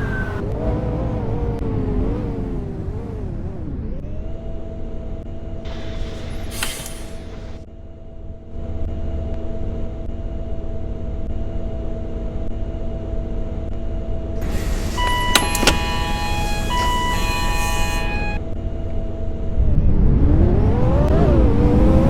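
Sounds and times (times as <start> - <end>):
bus diesel engine humming: 0.0 - 0.4, 5.1 - 7.6, 9.5 - 19.7
air hiss: 5.7 - 7.6, 14.4 - 18.3
short high electronic tones: 14.4 - 18.4.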